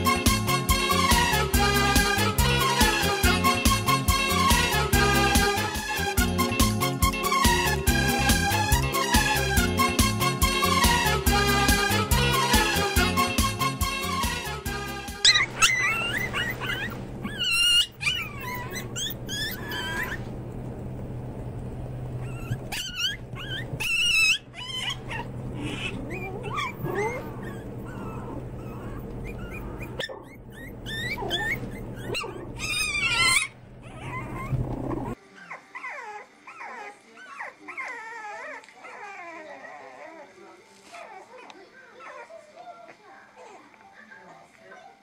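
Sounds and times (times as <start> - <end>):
puppies whimpering and squeaking: 0.0 - 6.3, 15.1 - 20.5, 22.0 - 44.4
dogs yipping: 15.2 - 20.4, 22.1 - 45.0.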